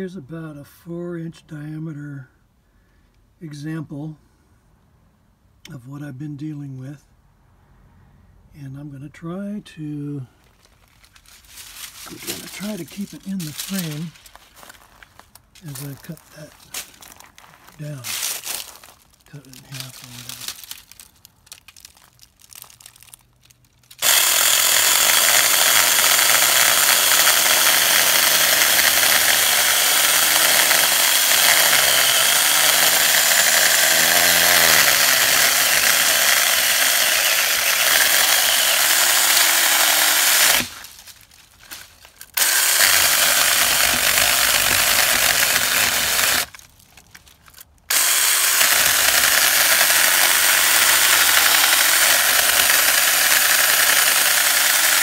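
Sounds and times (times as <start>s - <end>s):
mini chainsaw cutting wood: 11.2s - 14.8s, 15.6s - 17.1s, 17.8s - 23.2s, 23.8s - 55.0s.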